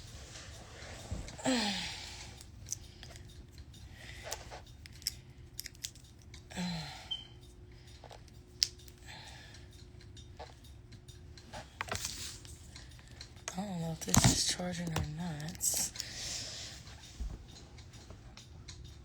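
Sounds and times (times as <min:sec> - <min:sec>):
light clicks and rustling: 0:07.2 - 0:19.0.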